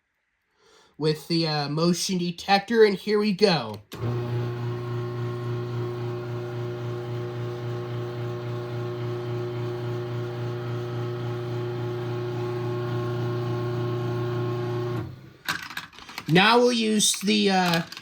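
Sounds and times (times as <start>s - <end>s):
garage door opener motor humming: 3.9s - 15.4s.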